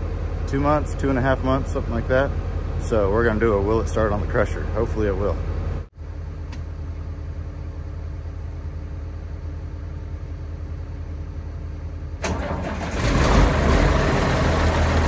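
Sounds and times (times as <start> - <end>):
low engine hum: 0.0 - 15.0
engine cranking and starting: 12.2 - 15.0.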